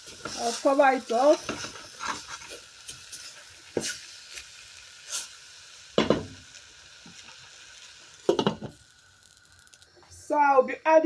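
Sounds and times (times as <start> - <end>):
faint steady sizzle: 0.0 - 11.0
knocks against a pot: 6.0 - 6.4, 8.3 - 8.8.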